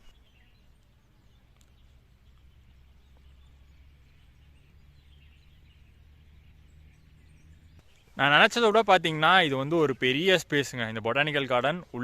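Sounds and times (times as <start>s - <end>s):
low steady rumble: 0.0s - 8.2s
faint ticks: 0.8s - 2.5s.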